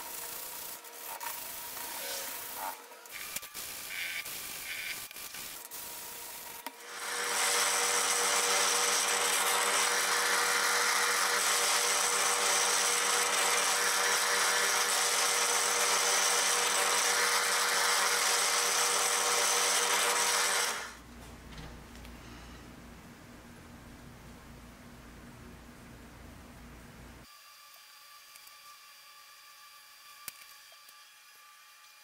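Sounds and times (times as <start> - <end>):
bit drilling through wood: 3.1 - 5.6, 6.5 - 21.0
drill press motor running: 6.6 - 21.0.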